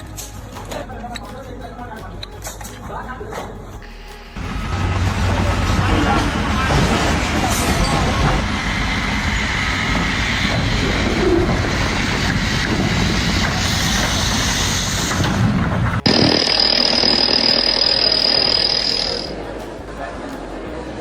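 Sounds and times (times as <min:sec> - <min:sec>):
machine high-pitched whine: 0:03.8 - 0:19.8
heavy machinery rumbling: 0:04.4 - 0:21.0.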